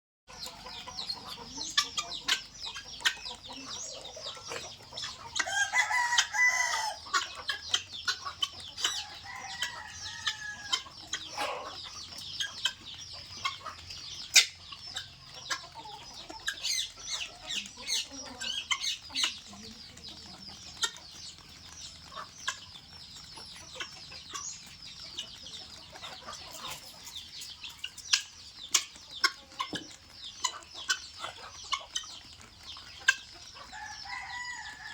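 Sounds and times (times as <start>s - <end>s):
guinea fowl chirping: 0.3s - 34.9s
guinea fowl call: 0.4s - 13.7s.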